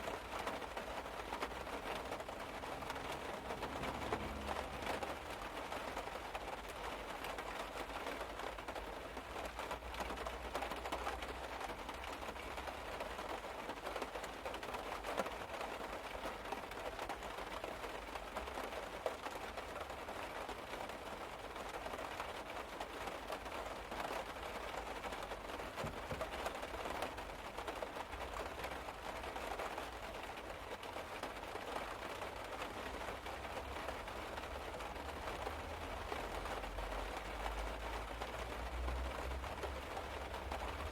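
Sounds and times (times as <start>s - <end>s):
rain pattering on car roof: 0.0s - 40.9s.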